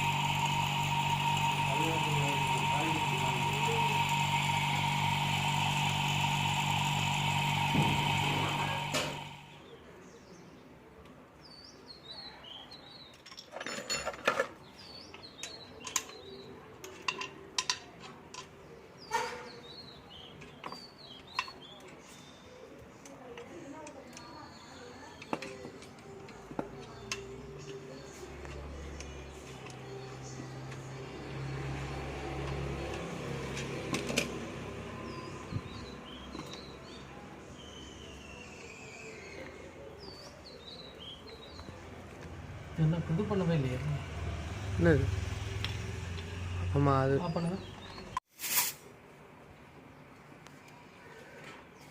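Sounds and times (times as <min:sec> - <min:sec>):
low electric hum: 0:00.0 - 0:09.7
small birds chirping: 0:14.6 - 0:17.0, 0:18.4 - 0:31.3, 0:34.9 - 0:48.2.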